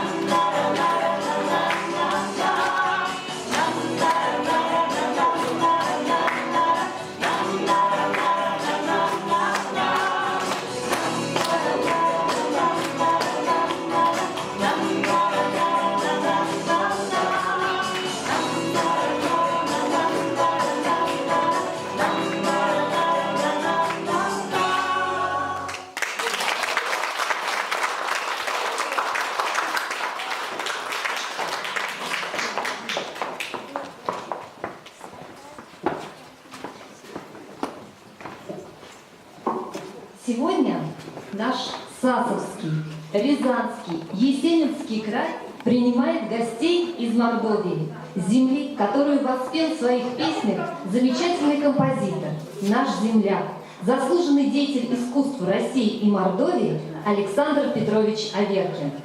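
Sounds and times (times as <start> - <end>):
group of voices singing: 0.0 - 26.0
audience applause: 25.7 - 34.5.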